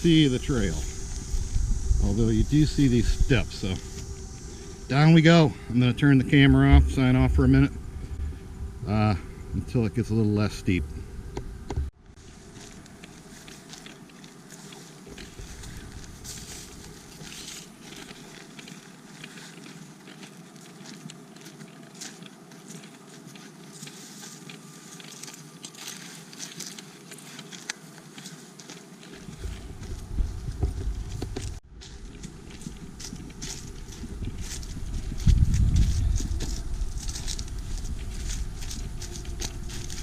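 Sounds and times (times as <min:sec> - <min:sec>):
footsteps on forest trail: 0:00.0 - 0:08.4, 0:12.1 - 0:40.0
low rumble: 0:00.0 - 0:11.7, 0:32.4 - 0:40.0
outdoor hiss: 0:00.0 - 0:20.0.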